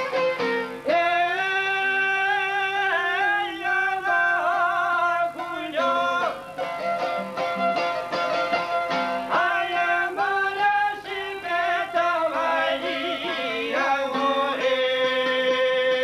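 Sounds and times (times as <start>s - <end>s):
plucked strings: 0.0s - 2.6s, 5.2s - 11.1s, 12.3s - 16.0s
person singing folk melody: 0.0s - 16.0s.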